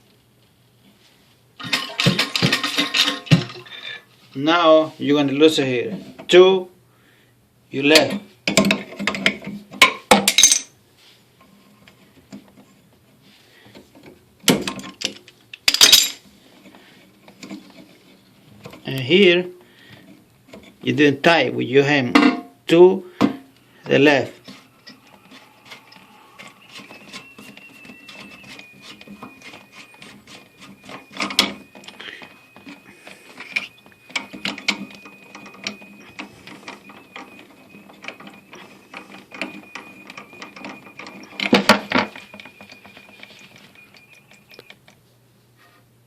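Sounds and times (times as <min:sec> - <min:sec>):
thin high whine: 0:23.0 - 0:45.0.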